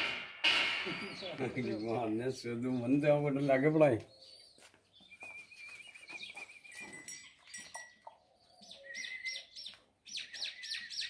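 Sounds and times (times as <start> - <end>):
bird whistled downward notes: 0.8 - 1.9, 5.0 - 7.0, 8.8 - 11.0.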